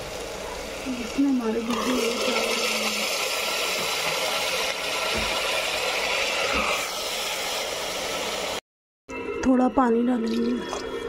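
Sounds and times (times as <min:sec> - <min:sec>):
food sizzling in hot oil: 0:00.0 - 0:08.6.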